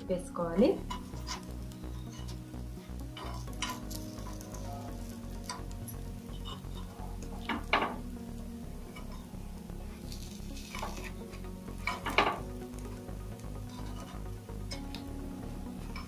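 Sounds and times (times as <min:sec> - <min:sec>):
oil sizzling: 0:00.7 - 0:16.0
utensils scraping a pan: 0:00.9 - 0:02.4, 0:03.1 - 0:04.7, 0:06.3 - 0:07.7, 0:10.0 - 0:12.4, 0:13.7 - 0:14.3.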